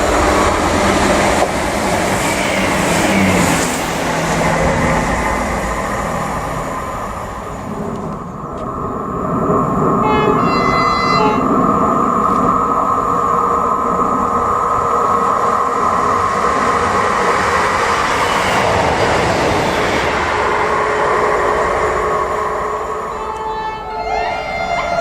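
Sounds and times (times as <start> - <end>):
steady whine: 0.0 - 25.0
train running past: 0.0 - 25.0
train horn blast: 10.0 - 11.6, 20.8 - 25.0.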